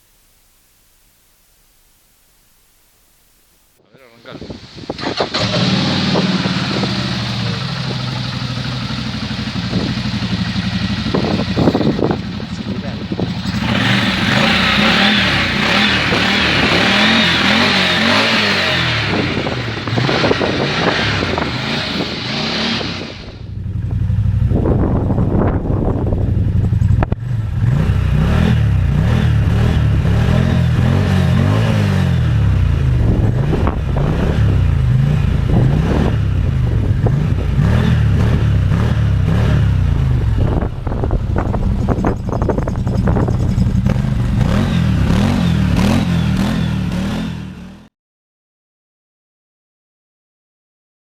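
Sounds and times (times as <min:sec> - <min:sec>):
wind on microphone: 0:04.1 - 0:08.6, 0:09.3 - 0:27.8, 0:32.3 - 0:45.4
engine revving up and down: 0:04.8 - 0:23.4, 0:26.9 - 0:47.9.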